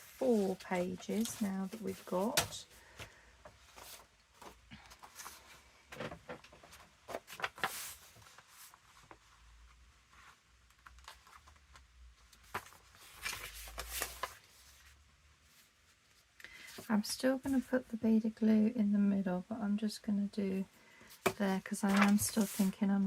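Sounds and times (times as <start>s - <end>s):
paper pages rustling: 0.0s - 14.9s, 21.2s - 22.8s.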